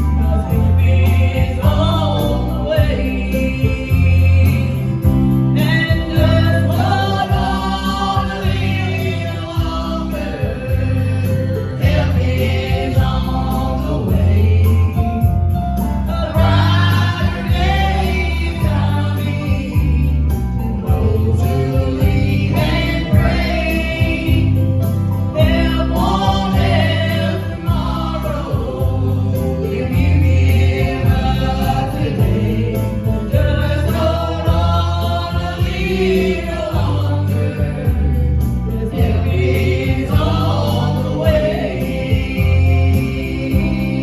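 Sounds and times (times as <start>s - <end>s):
gospel group singing in harmony: 0.0s - 44.0s
instrumental backing with bass line: 0.0s - 44.0s.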